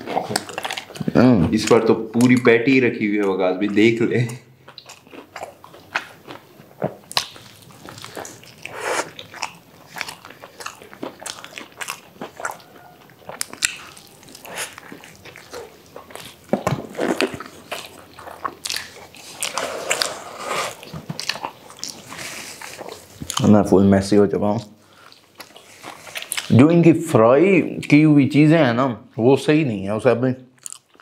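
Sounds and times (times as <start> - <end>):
people chewing burgers: 0.0 - 26.9, 30.5 - 31.0
wet mouth clicks and smacks: 6.8 - 9.2.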